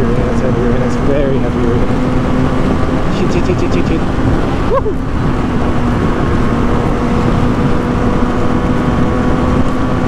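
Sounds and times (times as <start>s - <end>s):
motorcycle engine cruising: 0.0s - 10.0s
wind noise on microphone: 3.9s - 10.0s.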